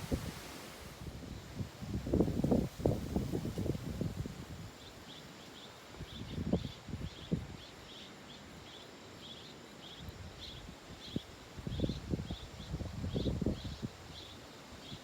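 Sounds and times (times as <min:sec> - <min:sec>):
wind buffeting microphone: 0:00.0 - 0:04.7, 0:11.1 - 0:14.2
low wind rumble: 0:00.0 - 0:04.8, 0:11.1 - 0:14.2.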